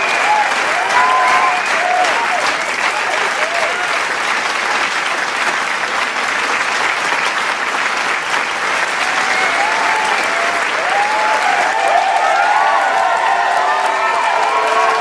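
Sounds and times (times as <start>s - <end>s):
cheering shouts and whoops: 0.0s - 4.0s, 9.0s - 15.0s
crowd applauding: 0.0s - 15.0s.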